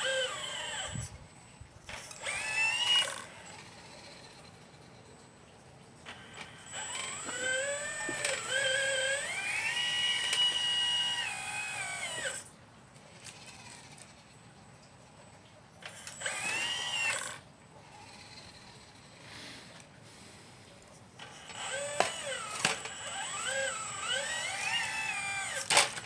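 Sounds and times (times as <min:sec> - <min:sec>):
electric motor whine: 0:00.0 - 0:04.6, 0:06.1 - 0:12.5, 0:15.8 - 0:19.3, 0:21.2 - 0:26.0.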